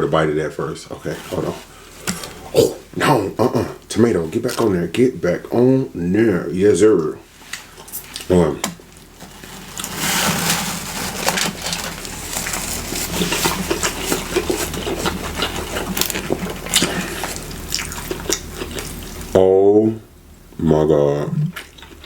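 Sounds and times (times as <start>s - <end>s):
person chewing food: 10.7s - 19.3s, 21.5s - 22.0s.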